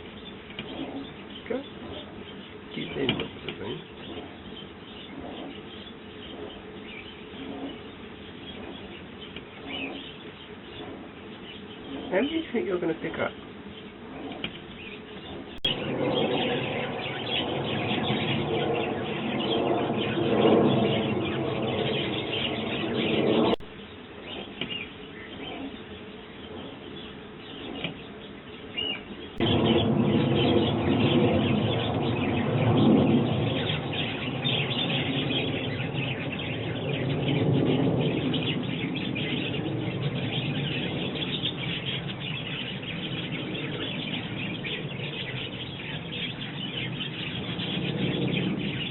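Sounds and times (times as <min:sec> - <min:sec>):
sparrows chirping: 0:00.0 - 0:48.9.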